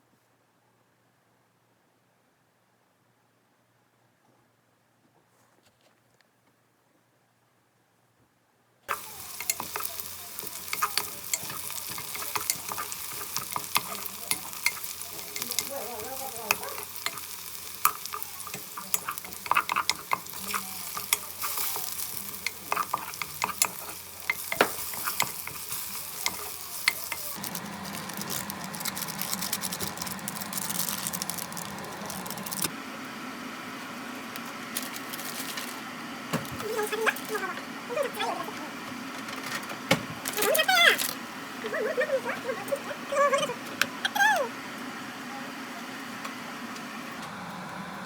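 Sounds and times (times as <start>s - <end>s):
utensil clicking against pan: 8.9s - 30.8s
food sizzling in a pan: 8.9s - 39.1s.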